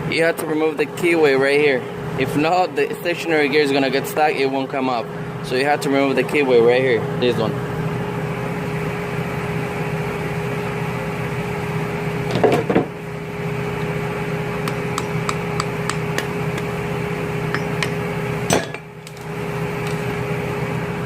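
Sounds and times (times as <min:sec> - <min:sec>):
steady hum: 0:06.4 - 0:21.0
hand tools clicking on metal: 0:14.7 - 0:16.8.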